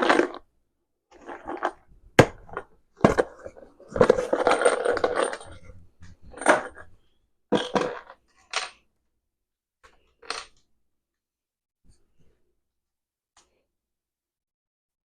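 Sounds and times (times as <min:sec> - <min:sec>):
hard objects knocking and clattering: 0:01.2 - 0:08.8.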